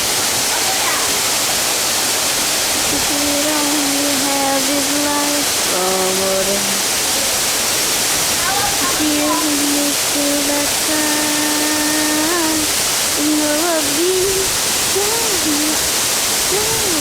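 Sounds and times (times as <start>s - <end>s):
waterfall rushing: 0.0s - 17.0s
person singing long notes: 2.8s - 7.0s, 8.8s - 15.8s, 16.5s - 17.0s.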